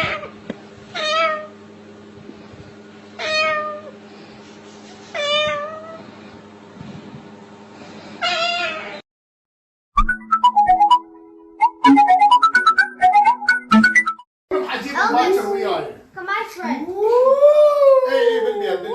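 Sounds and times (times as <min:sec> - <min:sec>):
cat-like meows: 0:00.0 - 0:01.5, 0:03.2 - 0:03.9, 0:05.1 - 0:06.0, 0:08.2 - 0:09.0
steady low hum: 0:00.0 - 0:08.2.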